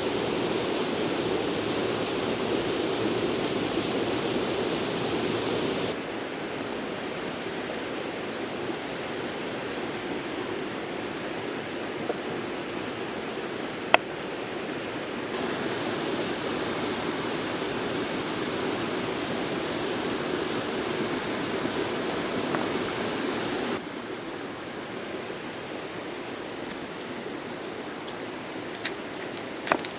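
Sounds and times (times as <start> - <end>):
river water rushing: 0.0 - 29.9
faint high steady tone: 15.4 - 25.3.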